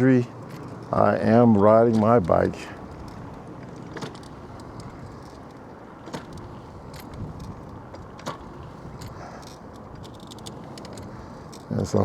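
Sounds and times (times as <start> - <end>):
sharp clicks or rattles: 2.8 - 11.7
wind rushing on microphone: 6.3 - 10.1.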